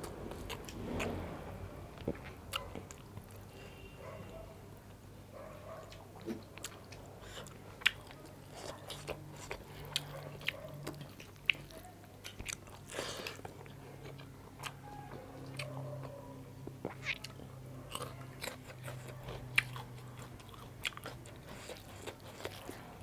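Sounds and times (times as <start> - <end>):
faint low hum: 0.0 - 23.0
food crunching: 6.0 - 23.0.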